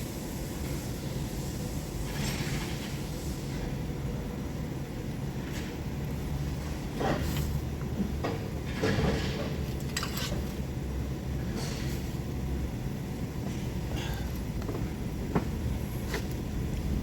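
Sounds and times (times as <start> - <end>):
tools and parts clattering: 8.7 - 10.5.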